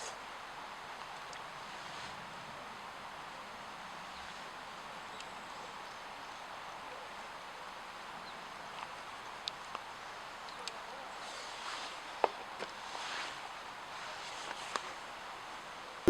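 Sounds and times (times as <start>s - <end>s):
outdoor ambience hiss: 0.0s - 6.5s.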